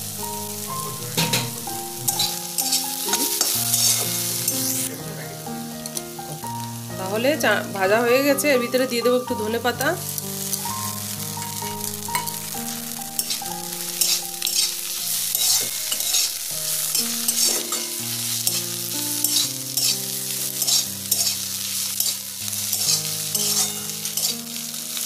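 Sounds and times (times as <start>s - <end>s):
greens sizzling in a pan: 0.0s - 25.0s
soft background music: 0.0s - 25.0s
spatula scraping a pan: 1.2s - 4.9s, 13.1s - 24.5s.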